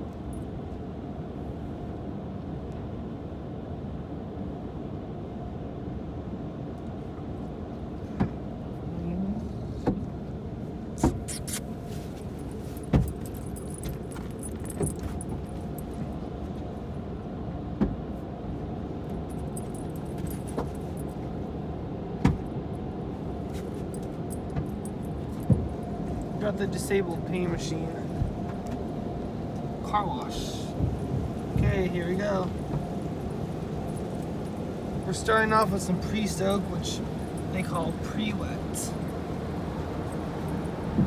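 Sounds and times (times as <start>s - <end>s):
car idling: 10.4s - 17.3s, 18.1s - 41.0s
light jingling: 11.3s - 16.3s, 19.0s - 21.4s, 22.8s - 28.2s, 28.8s - 41.0s.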